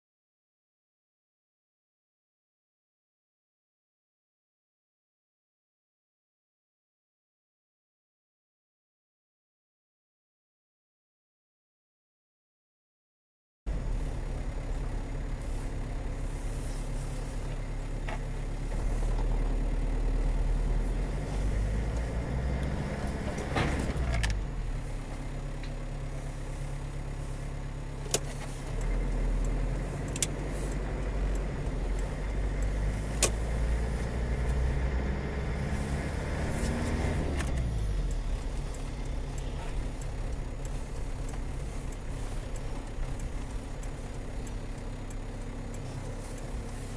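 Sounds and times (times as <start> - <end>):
car engine and road noise: 13.7 - 46.9
sharp clicks: 28.0 - 34.7, 36.6 - 46.8.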